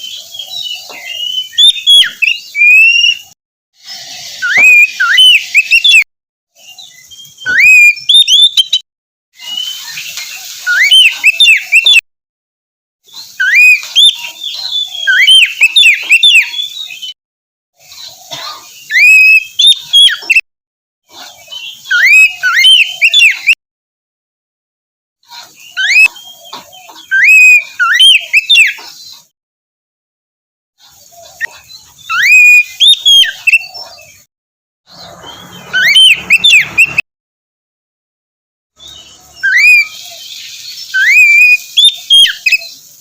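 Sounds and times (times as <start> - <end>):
bird singing whistled phrases: 0.0 - 6.0, 6.6 - 8.8, 9.4 - 12.0, 13.2 - 17.2, 18.8 - 20.4, 21.5 - 23.6, 25.6 - 26.4, 27.0 - 28.8, 31.3 - 34.3, 35.0 - 37.0, 38.8 - 42.9.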